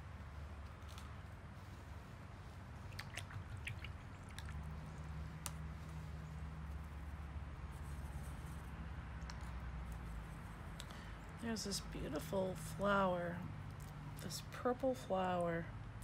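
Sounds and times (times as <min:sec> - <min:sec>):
steady low hum: 0:00.0 - 0:16.0
brush swishing in water: 0:00.2 - 0:08.8.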